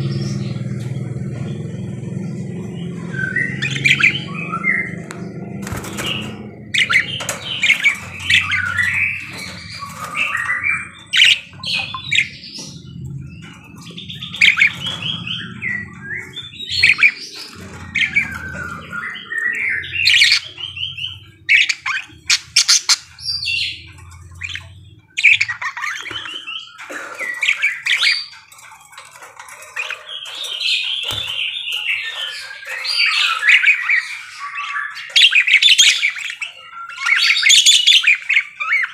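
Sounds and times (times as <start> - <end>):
low hum: 0.0 - 22.0
parakeets chattering: 0.0 - 38.9.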